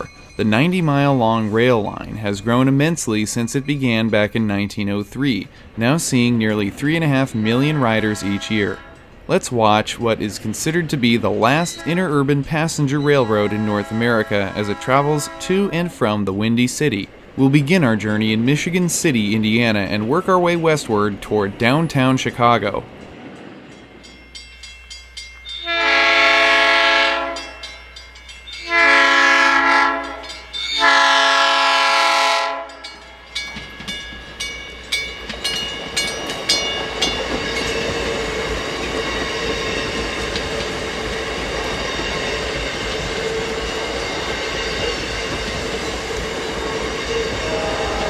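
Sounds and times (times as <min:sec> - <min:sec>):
crossing bell ringing: 0:00.0 - 0:05.4, 0:10.4 - 0:16.0, 0:21.6 - 0:48.0
train wheels rumbling on rail: 0:00.0 - 0:48.0
train chime horn blasts: 0:07.3 - 0:09.1, 0:11.5 - 0:12.3, 0:13.0 - 0:16.0, 0:25.5 - 0:33.2, 0:46.6 - 0:48.0
wheels clicking over rail joints: 0:32.5 - 0:47.6.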